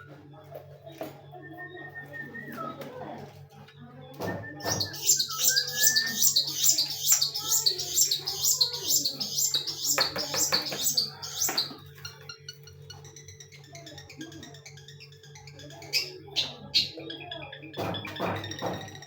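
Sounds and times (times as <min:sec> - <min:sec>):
pet bird chirping: 0:04.3 - 0:19.0.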